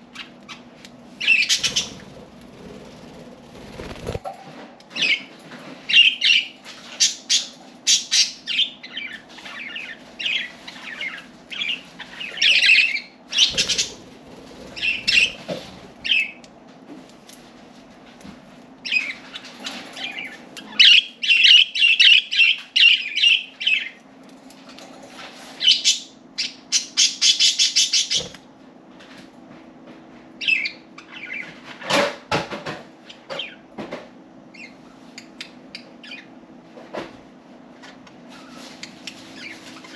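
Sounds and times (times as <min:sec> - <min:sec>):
budgerigars chirping and warbling: 0:01.2 - 0:04.2, 0:06.0 - 0:16.4, 0:25.6 - 0:28.4
wings flapping: 0:01.5 - 0:04.4, 0:13.4 - 0:16.2.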